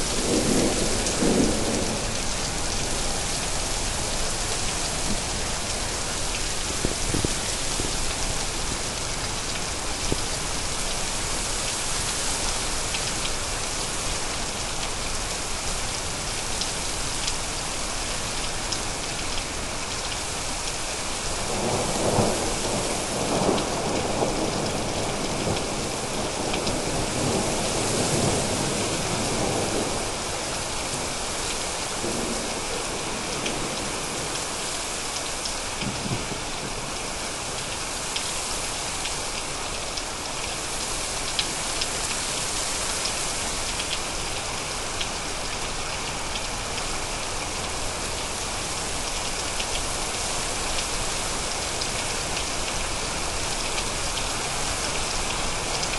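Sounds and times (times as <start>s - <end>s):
heavy rain falling: 0.0s - 55.9s
thunder rumbling: 0.1s - 5.7s.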